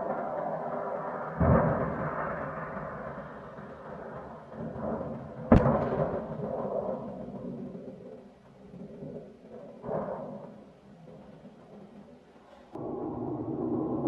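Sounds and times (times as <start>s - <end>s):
deep booms: 5.5s - 7.3s.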